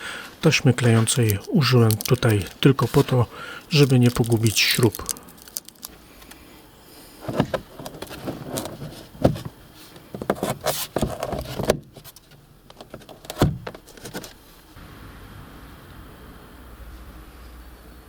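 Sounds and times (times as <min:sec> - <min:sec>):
plastic trim parts clicking and knocking: 0:00.8 - 0:05.9.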